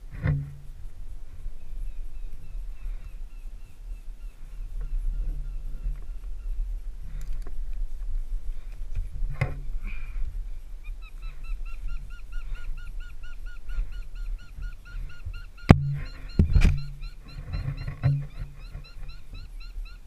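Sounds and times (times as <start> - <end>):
bird calling repeated notes: 10.8 - 20.0.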